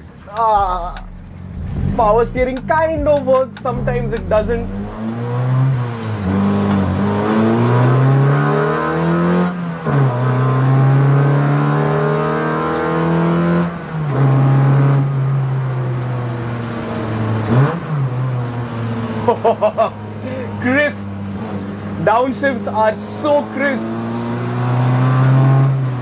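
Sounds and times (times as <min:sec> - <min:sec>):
rev blip: 0:00.0 - 0:05.3
car engine revving: 0:00.0 - 0:26.0.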